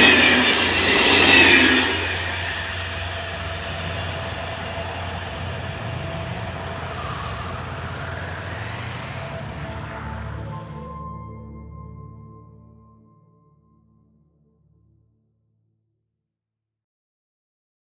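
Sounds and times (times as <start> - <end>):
train rumbling on rails: 0.0 - 10.9.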